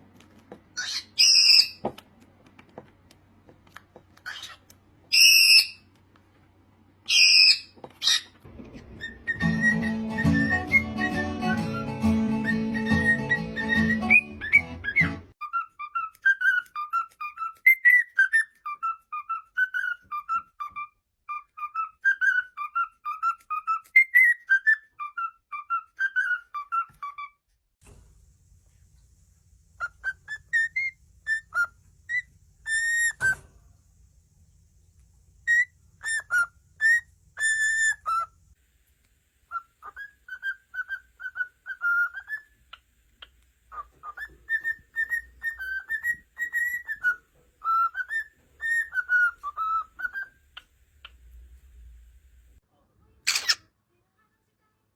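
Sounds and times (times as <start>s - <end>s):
parrot whistling: 0.8s - 1.8s, 4.2s - 5.8s, 7.1s - 27.3s, 29.8s - 33.4s, 35.4s - 38.4s, 39.5s - 51.3s.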